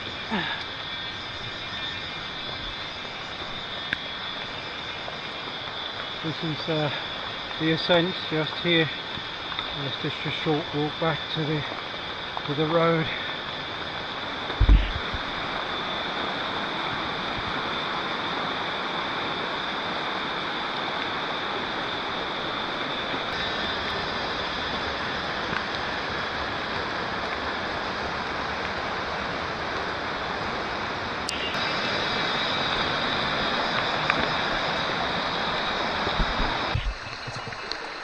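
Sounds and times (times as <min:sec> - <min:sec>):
river rushing: 0:00.0 - 0:38.0
short low thump: 0:14.6 - 0:15.2.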